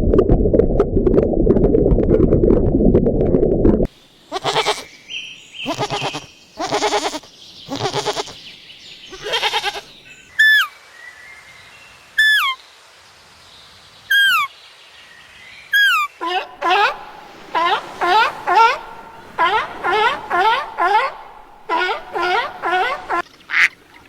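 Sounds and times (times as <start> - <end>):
sheep or goats bleating: 4.3 - 4.8, 5.7 - 8.4, 9.1 - 9.9
bird whistled call: 15.8 - 23.2.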